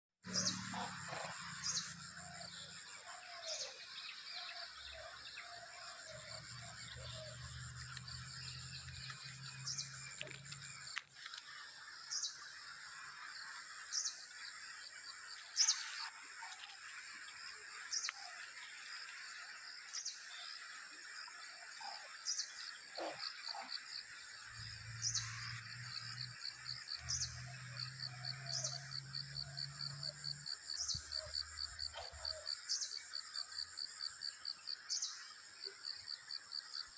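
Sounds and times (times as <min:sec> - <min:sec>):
insect drone: 0:00.3 - 0:36.9.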